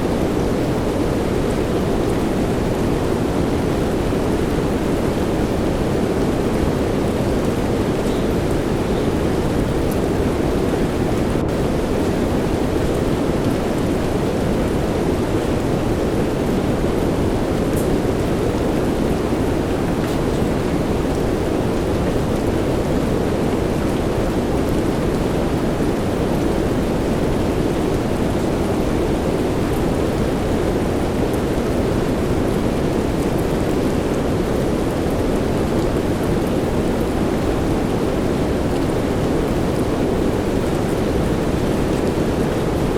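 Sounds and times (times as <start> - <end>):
soft rain: 0.0 - 42.9
white noise: 0.0 - 42.9
faint raindrop ticks: 9.7 - 10.1, 17.6 - 18.4.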